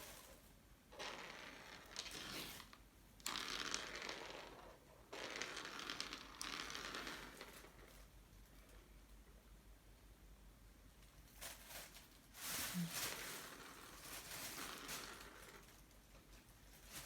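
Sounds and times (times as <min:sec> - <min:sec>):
crinkly toy rustling: 0:00.0 - 0:00.5, 0:11.1 - 0:17.0.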